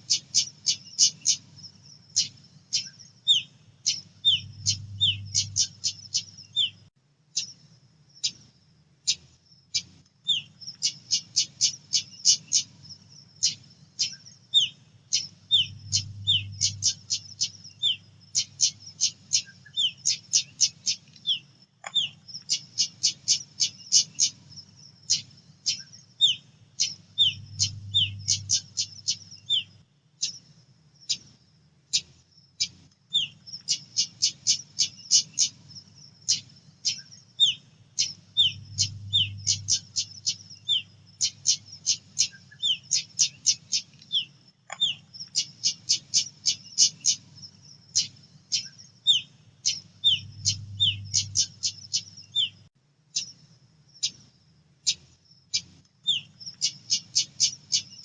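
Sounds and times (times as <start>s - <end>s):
faint low hum: 0.0s - 45.8s, 46.4s - 58.0s
bird chip notes: 4.2s - 6.8s, 15.5s - 18.0s, 27.2s - 29.7s, 38.4s - 40.4s, 50.0s - 52.5s.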